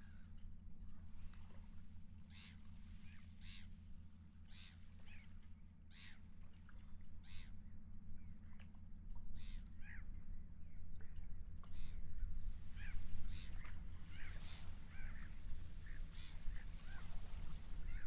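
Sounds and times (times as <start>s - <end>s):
low steady rumble: 0.0s - 18.0s
seagulls calling: 9.4s - 10.1s, 12.7s - 18.0s.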